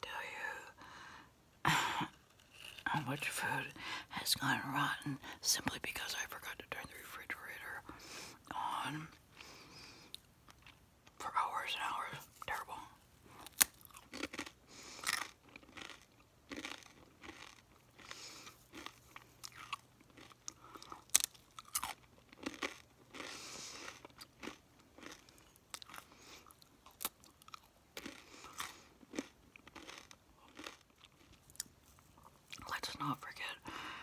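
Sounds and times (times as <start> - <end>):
chewing crunchy food: 2.0 - 3.2, 9.1 - 11.2, 12.4 - 32.8.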